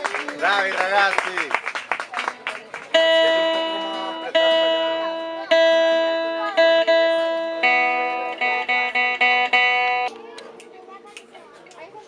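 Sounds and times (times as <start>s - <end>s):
guitar chords ringing: 2.9s - 12.0s.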